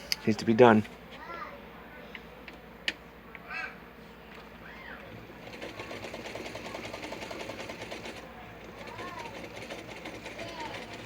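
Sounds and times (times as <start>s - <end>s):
sewing machine running: 5.1s - 11.0s.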